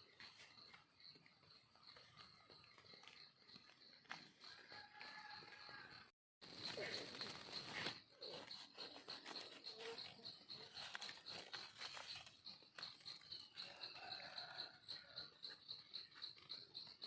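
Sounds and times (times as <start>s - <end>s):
faint high-pitched pulsing chirp: 6.6s - 17.0s.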